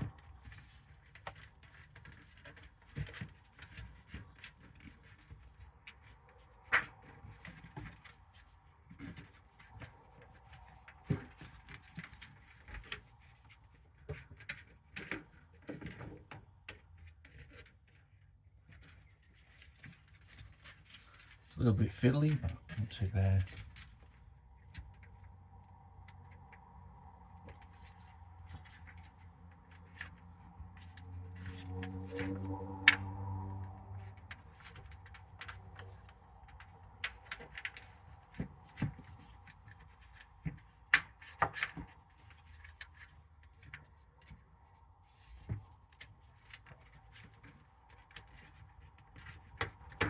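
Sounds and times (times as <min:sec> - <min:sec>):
low hum: 0:24.4 - 0:37.0.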